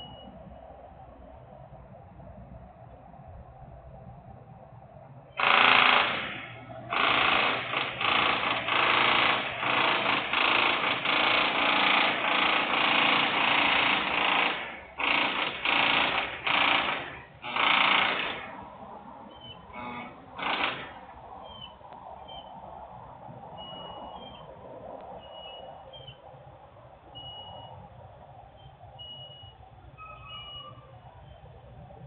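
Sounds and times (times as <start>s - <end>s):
industrial work noise bursts: 5.4s - 18.8s, 19.5s - 21.7s.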